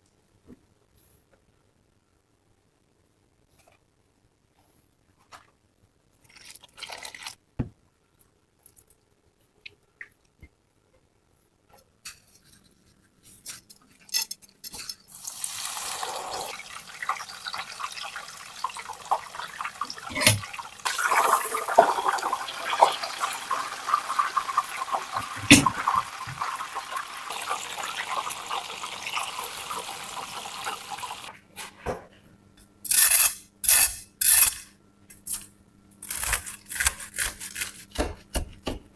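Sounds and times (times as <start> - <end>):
chicken frying in hot oil: 15.1 - 31.3.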